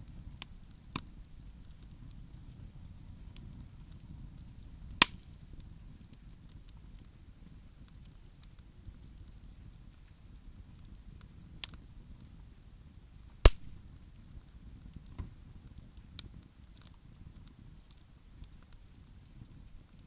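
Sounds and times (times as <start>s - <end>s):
campfire low rumble: 0.0s - 20.0s
small fire crackles: 0.0s - 20.0s
loud sharp pop from burning wood: 0.4s - 1.8s, 4.9s - 7.1s, 11.6s - 11.8s, 13.4s - 14.0s.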